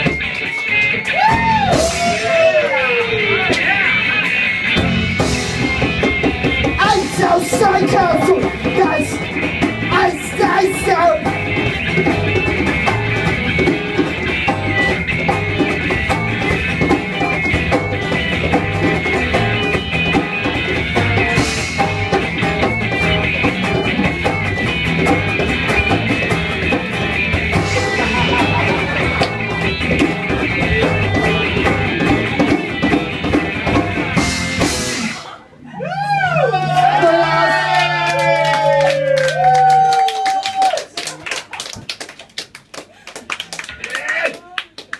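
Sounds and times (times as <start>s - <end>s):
rock band guitar and drums: 0.0s - 35.6s.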